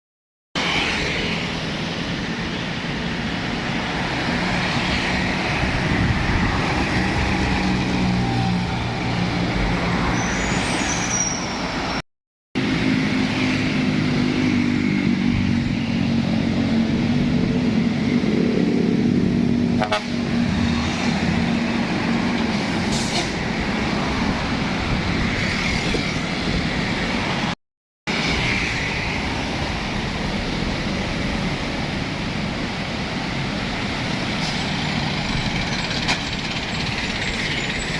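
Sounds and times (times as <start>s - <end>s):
trucks passing: 0.6s - 12.0s, 12.6s - 37.9s
high falling squeal: 10.0s - 12.0s.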